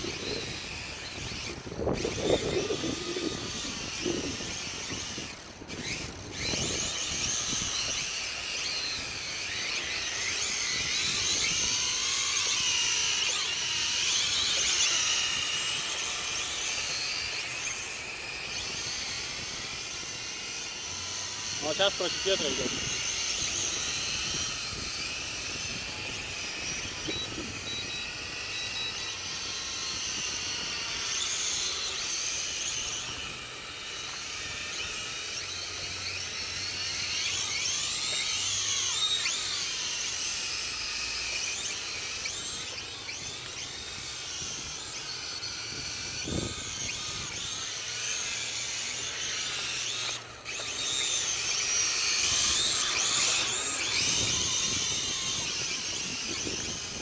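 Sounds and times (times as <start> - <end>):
quadcopter propellers whining: 0.0 - 57.0.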